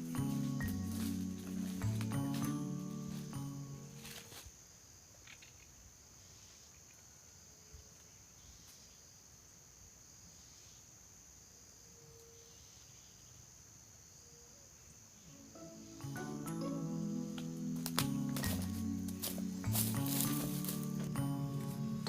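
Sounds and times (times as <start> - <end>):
crickets trilling: 0.0 - 22.0.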